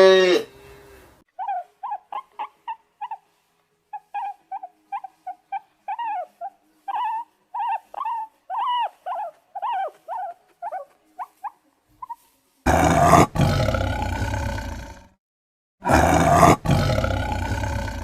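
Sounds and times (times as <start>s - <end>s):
animal yelping: 1.4s - 13.5s.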